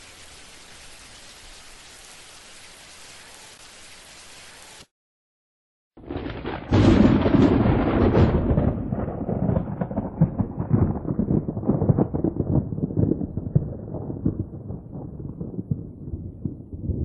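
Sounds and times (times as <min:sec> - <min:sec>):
thunderclap and rumble: 0:06.0 - 0:17.0.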